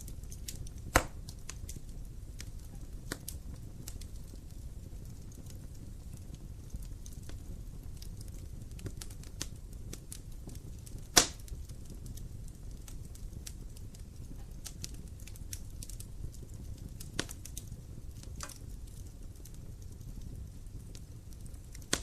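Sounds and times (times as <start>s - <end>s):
crackles of burning logs: 0.0s - 22.0s
fire rumbling in fireplace: 0.0s - 22.0s
sharp pop from fire: 0.4s - 1.8s, 10.9s - 11.6s, 17.2s - 17.6s, 18.2s - 18.7s, 21.7s - 22.0s.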